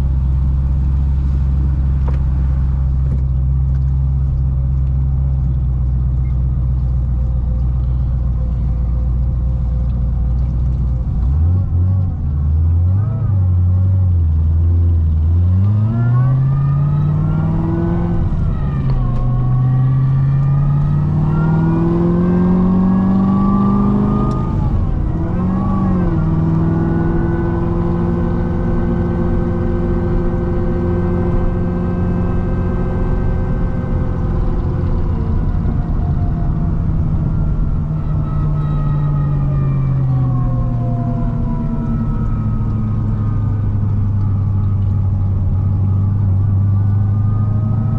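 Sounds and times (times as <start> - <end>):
supercharged engine accelerating: 11.1 - 47.9.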